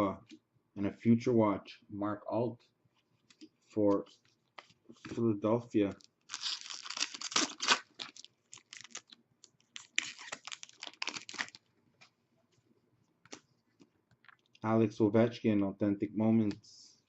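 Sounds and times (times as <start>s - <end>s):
card wrappers crinkling and rustling: 5.9s - 11.7s.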